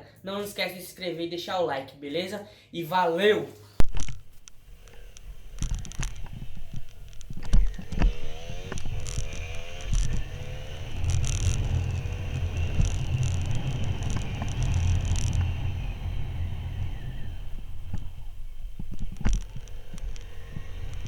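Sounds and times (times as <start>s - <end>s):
motorcycle engine accelerating: 4.1s - 21.0s
wind rumbling on microphone: 4.2s - 21.0s.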